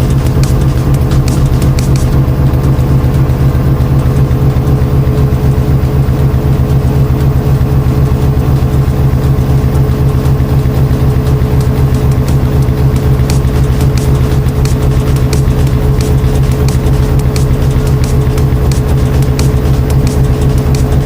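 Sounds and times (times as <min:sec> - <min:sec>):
washing machine humming and throbbing: 0:00.0 - 0:21.0.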